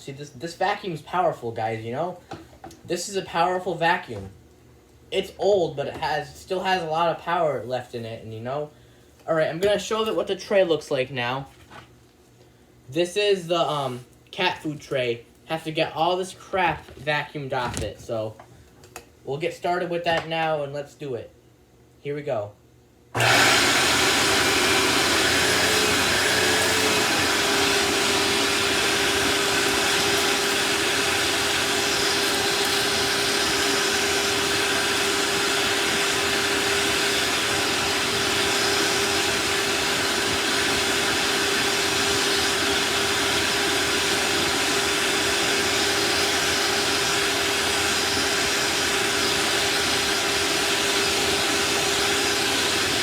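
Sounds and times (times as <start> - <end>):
vacuum cleaner running: 23.2 - 53.0.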